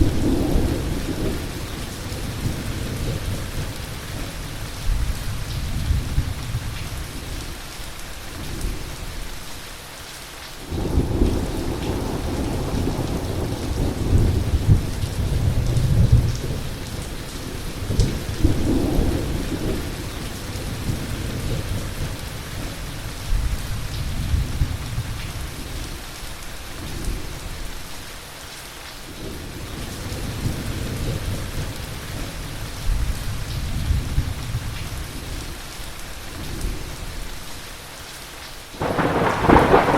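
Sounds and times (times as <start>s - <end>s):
thunder rumbling: 0.0s - 4.4s, 38.8s - 39.9s
rain on surfaces: 0.0s - 39.9s
loud thunderclap: 38.8s - 39.9s.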